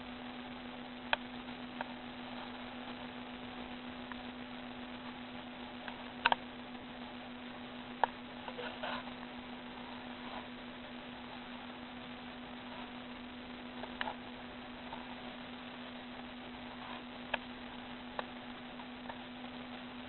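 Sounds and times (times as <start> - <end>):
background hiss: 0.0 - 20.0
steady low hum: 0.0 - 20.0
sharp clicks: 5.8 - 6.4
patter of ticks: 5.8 - 6.5, 7.9 - 9.2, 16.5 - 19.4.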